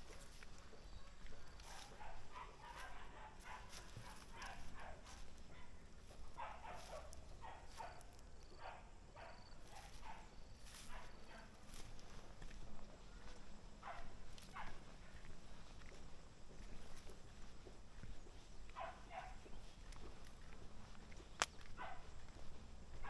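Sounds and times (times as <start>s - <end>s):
dogs barking: 0.0s - 12.3s, 13.1s - 15.2s, 18.0s - 19.6s, 21.8s - 23.0s.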